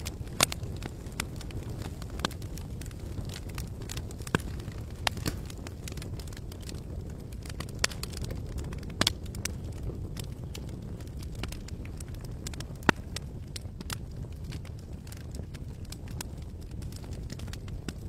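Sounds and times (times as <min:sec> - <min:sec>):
low fire rumble: 0:00.0 - 0:18.0
wood pops and snaps: 0:02.2 - 0:06.7.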